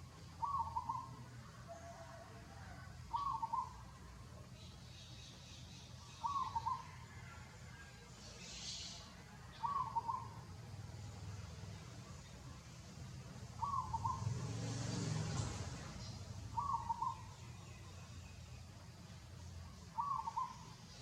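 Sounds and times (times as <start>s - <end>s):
bird call: 0.4s - 2.1s, 3.1s - 3.9s, 4.9s - 7.3s, 8.4s - 10.4s, 13.6s - 14.5s, 16.0s - 18.1s, 19.8s - 21.0s.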